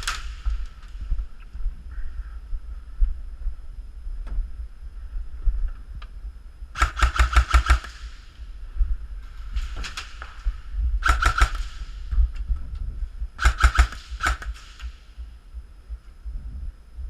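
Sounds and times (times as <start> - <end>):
airsoft guns firing: 0.0 - 0.9, 6.8 - 8.4, 9.6 - 12.3, 13.4 - 15.2
low rumble: 0.0 - 17.0.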